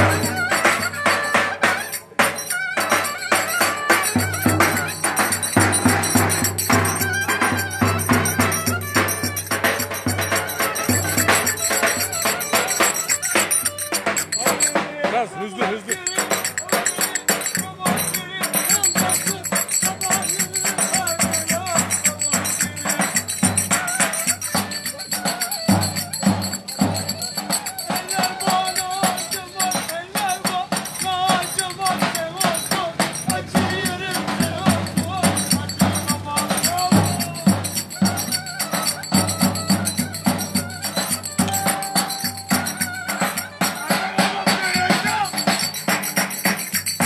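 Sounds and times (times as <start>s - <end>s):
dense percussion beat: 0.0s - 1.4s, 4.0s - 24.0s, 39.2s - 43.5s
ornamented lead melody: 41.3s - 43.5s.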